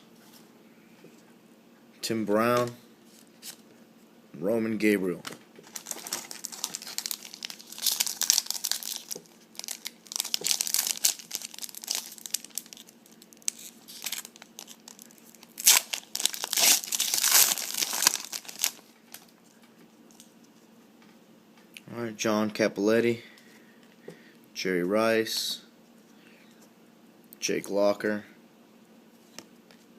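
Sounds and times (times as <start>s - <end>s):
wrapper tearing and crinkling: 5.6s - 19.3s.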